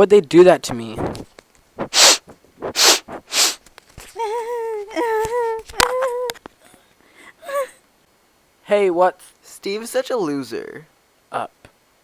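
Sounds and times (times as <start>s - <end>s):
person sobbing: 4.1s - 6.4s, 7.2s - 7.8s.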